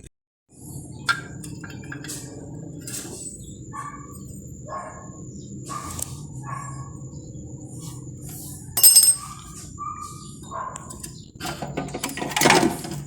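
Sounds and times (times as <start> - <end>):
small birds chirping: 0.6 - 11.4
sharp ringing clink: 8.8 - 9.4.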